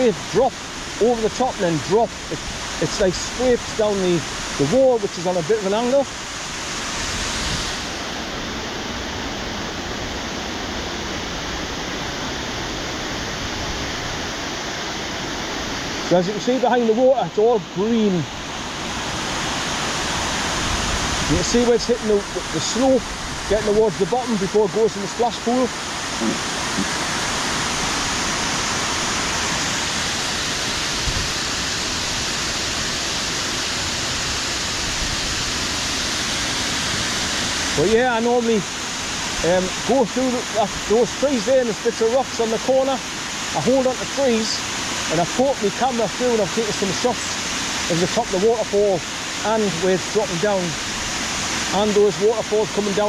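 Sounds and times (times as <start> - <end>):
waterfall roaring: 0.0 - 53.0.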